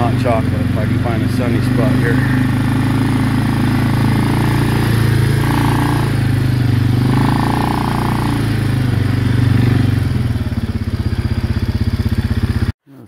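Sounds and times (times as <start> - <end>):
quad bike engine running: 0.0 - 12.7.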